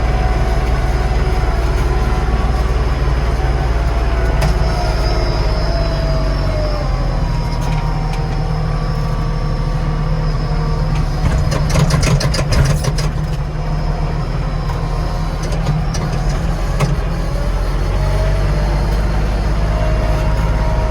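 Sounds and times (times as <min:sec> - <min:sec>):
tractor diesel engine running: 0:00.0 - 0:20.9
rattling clatter: 0:11.0 - 0:13.6.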